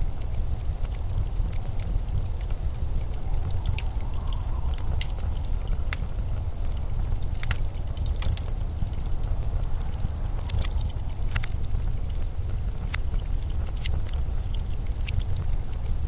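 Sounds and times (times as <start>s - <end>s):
sharp crackling clicks: 0.0s - 16.0s
storm wind rumbling: 0.0s - 16.0s.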